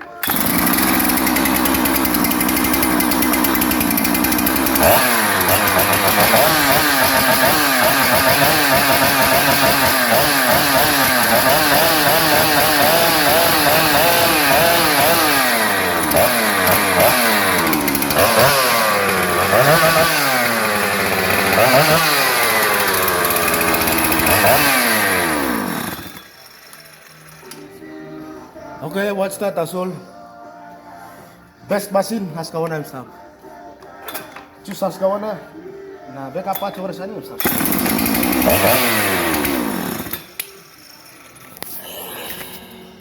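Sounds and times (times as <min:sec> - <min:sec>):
chainsaw engine revving: 0:00.2 - 0:26.7, 0:37.4 - 0:41.8.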